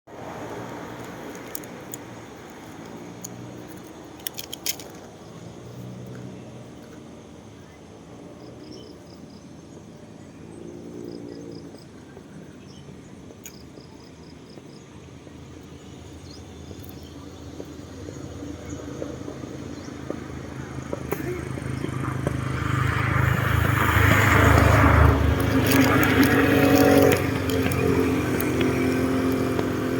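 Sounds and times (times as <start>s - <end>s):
vehicle engine approaching: 15.2s - 29.9s.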